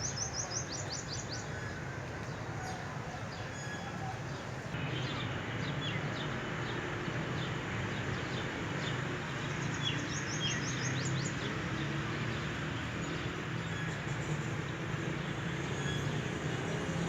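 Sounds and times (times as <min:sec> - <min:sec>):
small birds chirping: 0:03.4 - 0:15.1.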